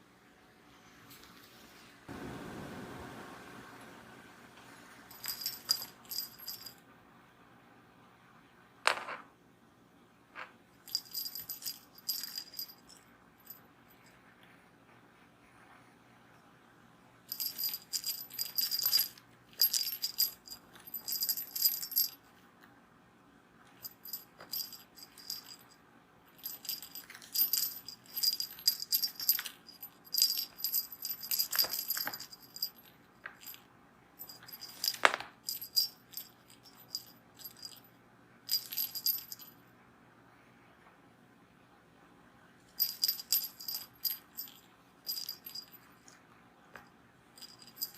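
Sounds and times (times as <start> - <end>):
cat toy jingling and rattling: 5.1 - 6.8, 10.8 - 13.6, 17.3 - 22.3, 23.8 - 33.6, 34.2 - 37.8, 38.5 - 39.5, 42.8 - 46.1, 47.4 - 47.9.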